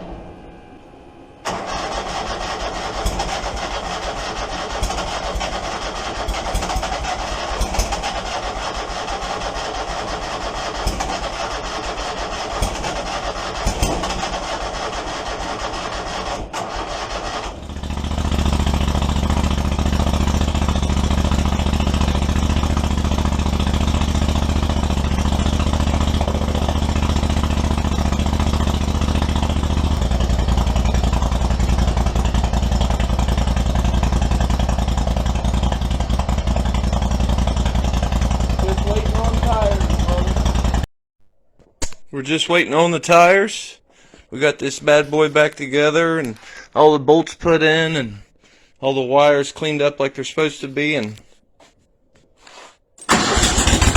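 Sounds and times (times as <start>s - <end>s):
engine running steadily: 17.6s - 40.8s, 53.1s - 53.9s.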